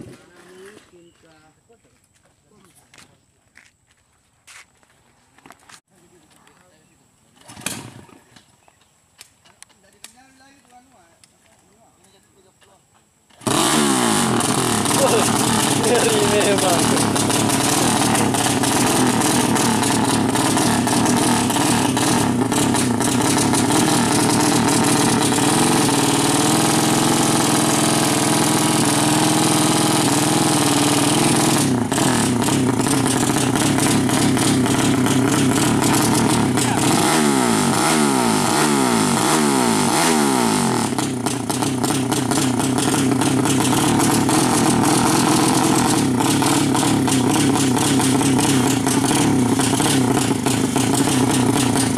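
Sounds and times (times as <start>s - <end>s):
motorcycle throttle blips: 13.3s - 51.9s
motorcycle engine running: 13.4s - 51.9s.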